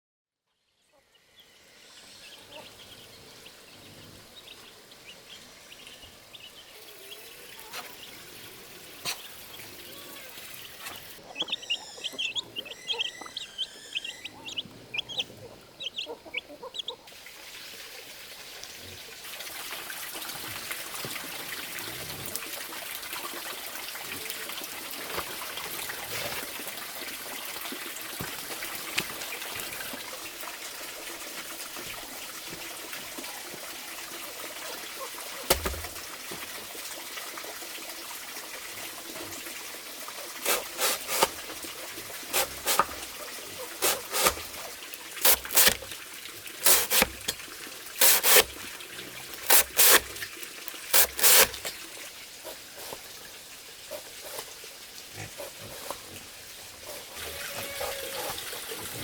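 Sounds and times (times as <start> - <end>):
running water trickling: 1.7 - 59.0
bird chirps: 10.6 - 17.0.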